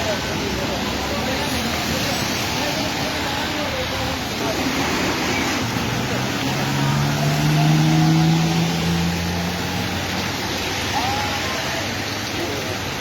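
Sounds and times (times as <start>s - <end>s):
heavy rain: 0.0s - 13.0s
vehicle engine passing: 4.2s - 10.9s.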